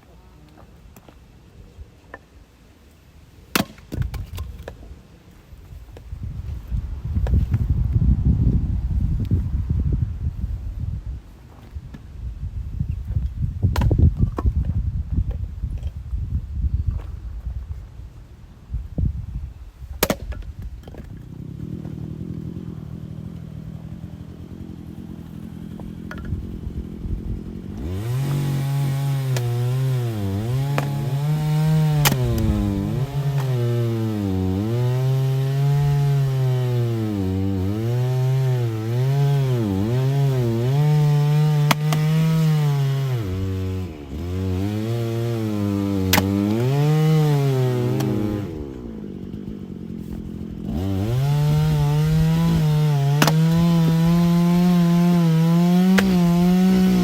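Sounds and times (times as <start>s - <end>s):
chainsaw cutting wood: 3.5s - 4.8s, 13.1s - 16.0s, 19.8s - 57.0s.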